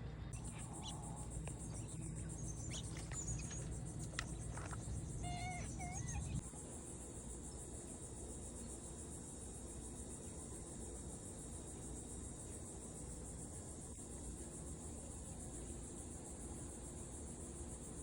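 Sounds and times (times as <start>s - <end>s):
insects trilling: 0.3s - 12.6s
short insect chirps: 0.4s - 6.4s.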